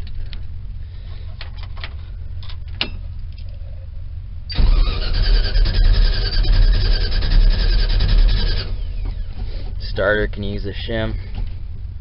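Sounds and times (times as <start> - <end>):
low background rumble: 0.0 - 12.0
starter motor cranking engine: 4.5 - 9.8.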